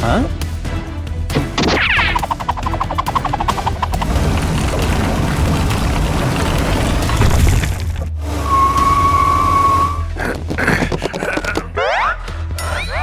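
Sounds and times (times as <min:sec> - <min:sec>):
background music with low bass: 0:00.0 - 0:08.3
noisy rumble with crashing: 0:01.3 - 0:10.7
quick run of ticks: 0:01.6 - 0:07.2.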